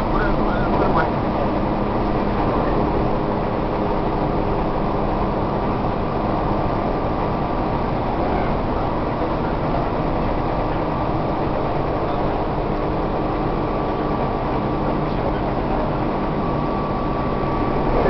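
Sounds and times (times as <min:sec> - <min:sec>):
train wheels rumbling: 0:00.0 - 0:18.0.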